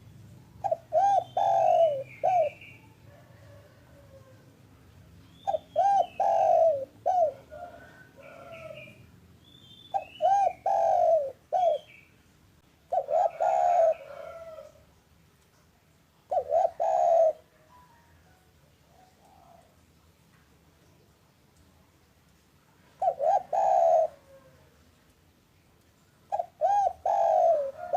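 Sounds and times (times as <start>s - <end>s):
dove cooing: 0.0s - 4.5s, 5.4s - 9.0s, 9.9s - 12.0s, 12.9s - 14.8s, 16.2s - 17.7s, 18.8s - 19.8s, 22.9s - 24.8s, 26.3s - 27.9s.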